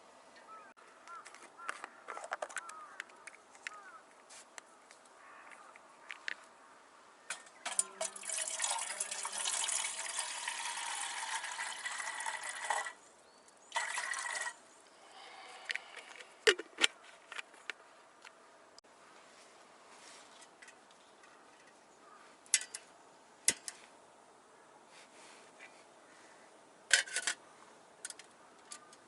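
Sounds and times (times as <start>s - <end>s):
liquid pouring into container: 7.7s - 13.0s, 13.7s - 14.6s.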